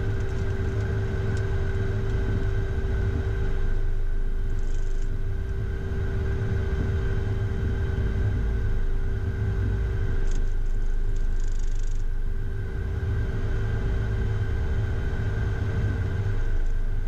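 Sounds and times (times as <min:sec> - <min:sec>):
jet cockpit low rumble: 0:00.0 - 0:17.0.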